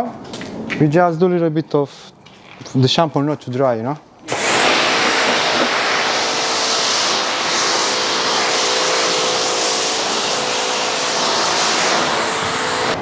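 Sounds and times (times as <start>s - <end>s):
pressure washer spray hissing: 4.3s - 13.0s
pump motor humming: 4.3s - 13.0s.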